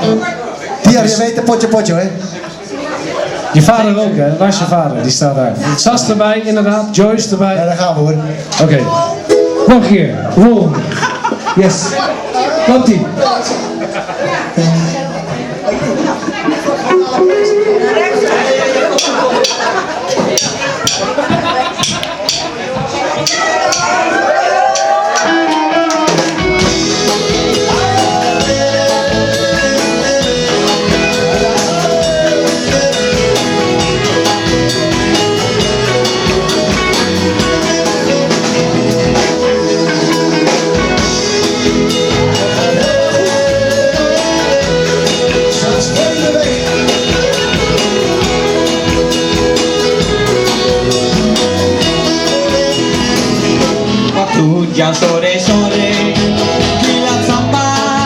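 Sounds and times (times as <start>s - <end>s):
drum kit beat: 16.9s - 58.0s
electric guitar: 24.7s - 58.0s.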